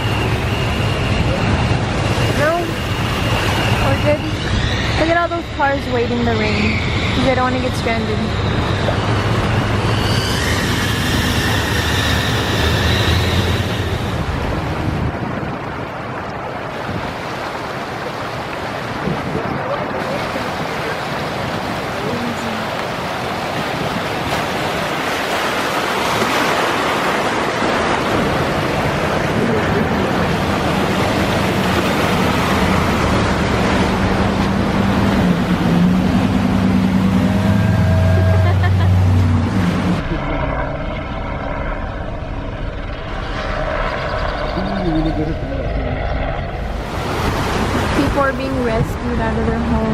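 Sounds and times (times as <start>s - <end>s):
floodwater rushing: 0.0s - 49.9s
vehicle engine and tyres rumbling: 0.0s - 49.9s
heavy rain: 14.1s - 40.3s.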